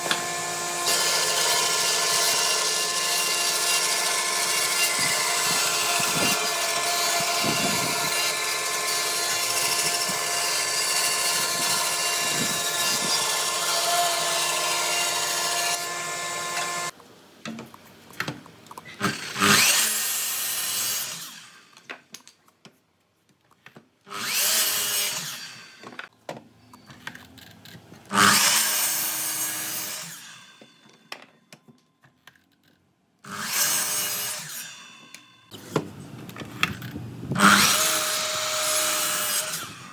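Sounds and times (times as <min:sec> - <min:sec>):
woodworking machine running: 0:00.0 - 0:16.9.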